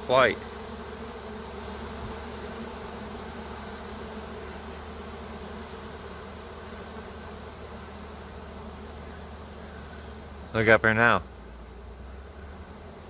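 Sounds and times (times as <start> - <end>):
bee swarm buzzing: 0.0 - 13.0.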